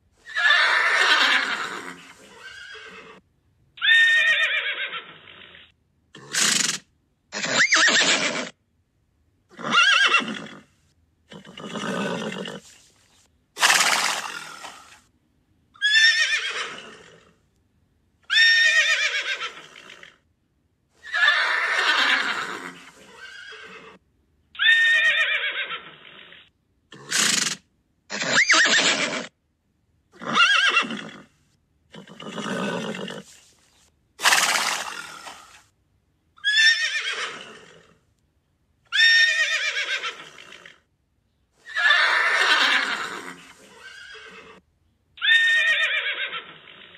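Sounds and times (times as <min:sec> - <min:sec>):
horse neighing and whinnying: 0:00.2 - 0:03.2, 0:03.8 - 0:08.6, 0:09.5 - 0:10.7, 0:11.3 - 0:12.8, 0:13.6 - 0:15.0, 0:15.8 - 0:17.3, 0:18.3 - 0:20.2, 0:21.0 - 0:24.0, 0:24.6 - 0:29.3, 0:30.2 - 0:31.3, 0:31.9 - 0:33.4, 0:34.2 - 0:35.6, 0:36.4 - 0:38.0, 0:38.9 - 0:40.9, 0:41.6 - 0:44.6, 0:45.2 - 0:46.9.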